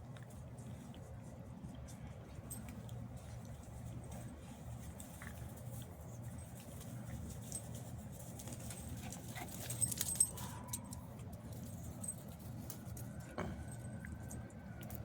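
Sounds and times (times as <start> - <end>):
puppies scuffling: 1.6 - 13.9
sharp clicks and jingles: 6.5 - 13.1.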